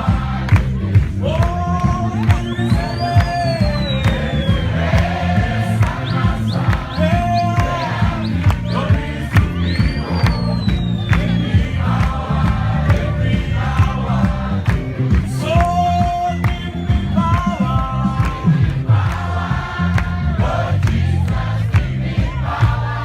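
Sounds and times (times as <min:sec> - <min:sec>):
group of voices singing: 0:00.0 - 0:23.0
percussive beat: 0:00.0 - 0:23.0.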